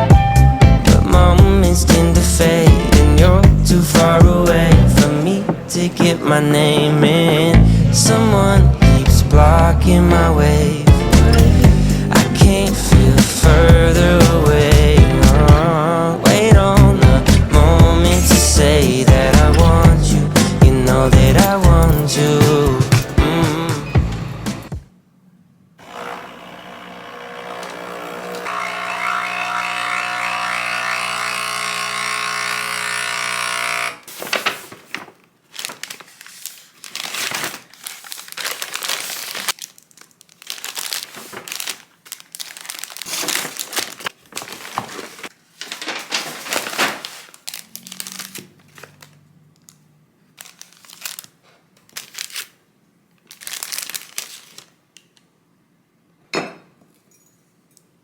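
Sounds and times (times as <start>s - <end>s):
packaging crinkling and tearing: 34.0s - 49.8s, 50.4s - 52.6s, 53.2s - 55.1s.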